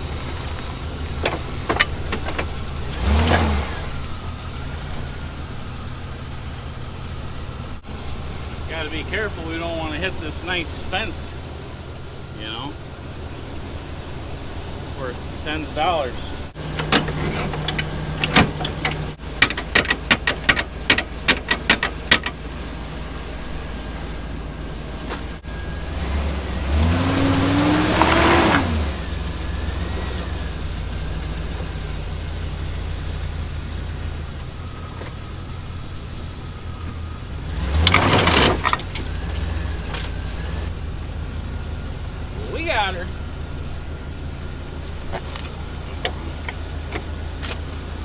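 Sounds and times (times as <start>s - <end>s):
truck engine idling: 0.0s - 48.0s
metal clicks and clanks: 0.2s - 3.5s, 16.6s - 22.4s, 37.7s - 40.6s.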